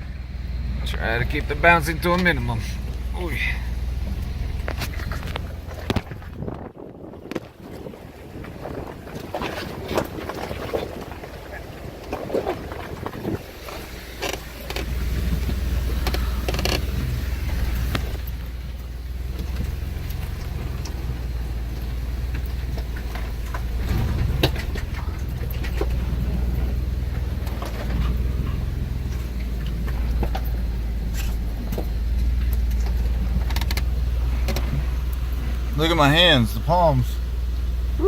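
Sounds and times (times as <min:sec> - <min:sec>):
engine low drone: 0:00.0 - 0:38.0.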